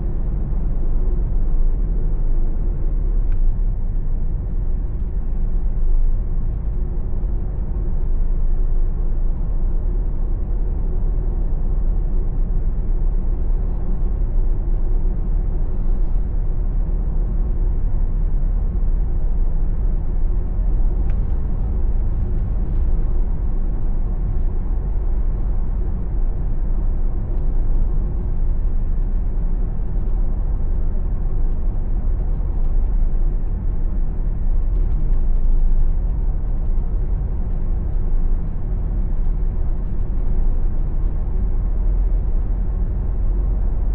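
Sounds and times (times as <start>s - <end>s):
car engine rumble: 0.0s - 43.9s.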